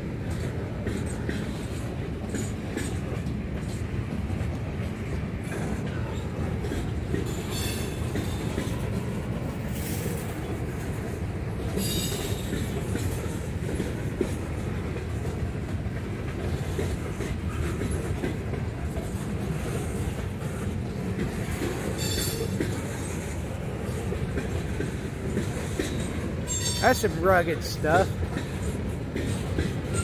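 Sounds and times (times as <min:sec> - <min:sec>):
steel wheels rumbling on rails: 0:00.0 - 0:30.0
high wheel squeals: 0:26.5 - 0:26.8.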